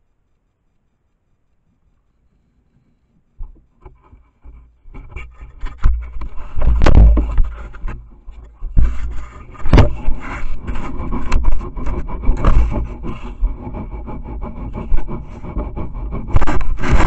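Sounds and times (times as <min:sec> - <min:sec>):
scraping against camera: 0:01.6 - 0:17.0
sharp knocks: 0:09.6 - 0:13.0.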